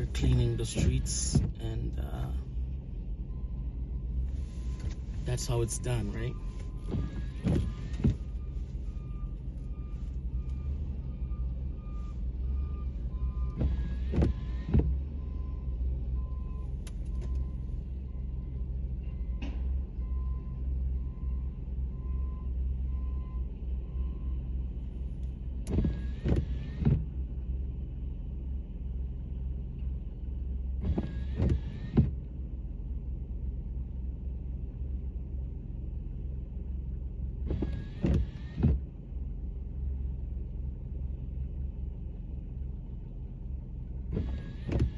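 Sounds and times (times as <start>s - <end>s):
car rumble inside cabin: 0.0s - 44.9s.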